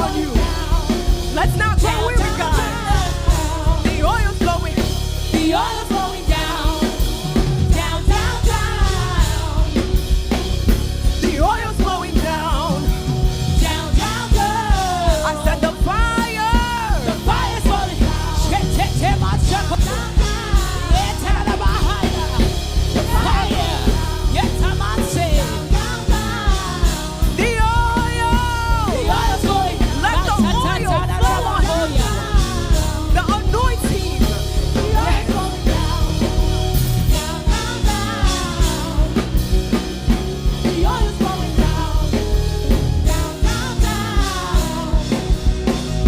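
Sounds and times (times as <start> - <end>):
person singing: 0.0 - 9.8, 13.6 - 36.5
drum kit beat: 0.0 - 46.0
worship band music: 0.0 - 46.0.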